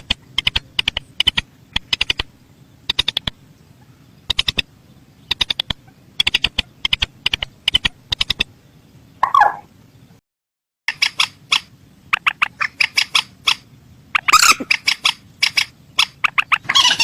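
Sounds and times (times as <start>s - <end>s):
rail bird calling sharp ticks: 0.0s - 3.4s, 4.2s - 4.7s, 5.3s - 8.5s, 14.2s - 16.9s.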